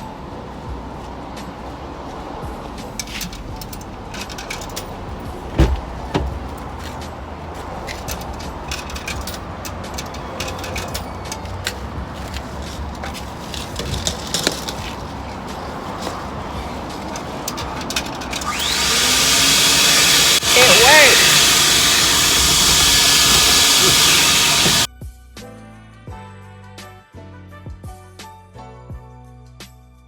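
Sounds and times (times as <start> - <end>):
debris rattling in hose: 16.9 - 24.9
vacuum droning: 18.5 - 24.9.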